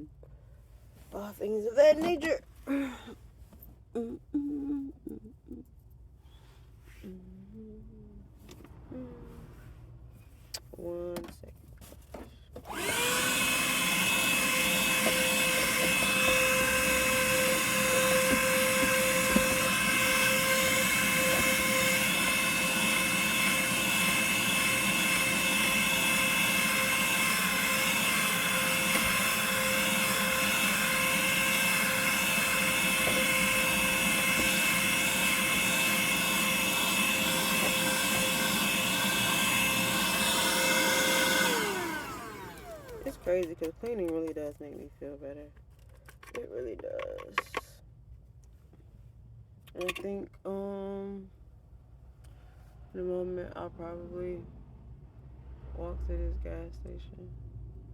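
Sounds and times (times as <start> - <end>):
handheld vacuum cleaner whining: 12.6 - 43.5.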